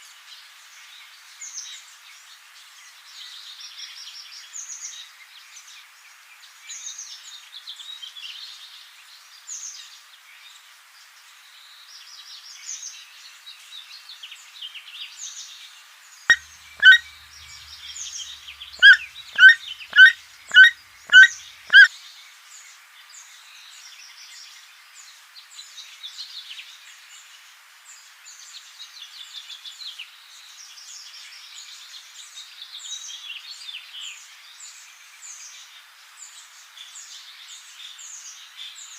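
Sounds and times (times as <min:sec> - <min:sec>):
songbirds singing: 0:00.3 - 0:38.9
loud bird short calls: 0:16.8 - 0:21.9.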